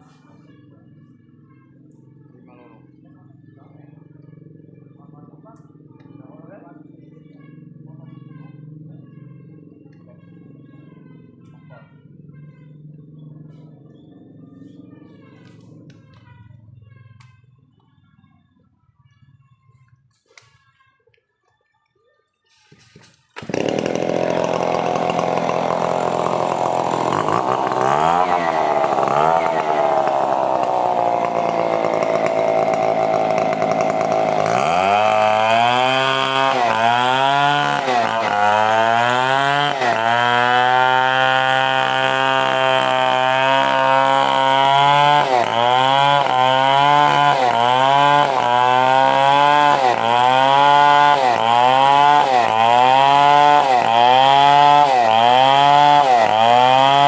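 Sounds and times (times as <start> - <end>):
chainsaw cutting wood: 22.5 - 57.0.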